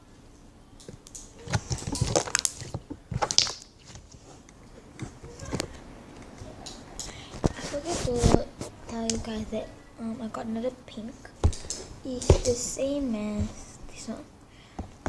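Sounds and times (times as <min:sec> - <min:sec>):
slime squished by hand: 0:01.0 - 0:04.0.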